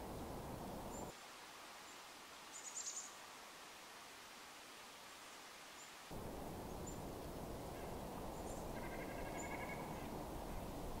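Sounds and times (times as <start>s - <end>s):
background hiss and rumble: 0.0s - 11.0s
faint bird chirps: 1.9s - 3.2s, 7.8s - 10.1s.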